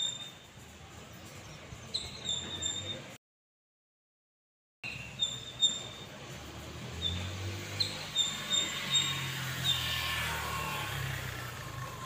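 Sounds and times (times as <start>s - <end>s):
small bird chirping: 1.2s - 3.1s, 4.8s - 6.1s, 7.0s - 9.9s
passing vehicle rumble: 5.8s - 12.0s.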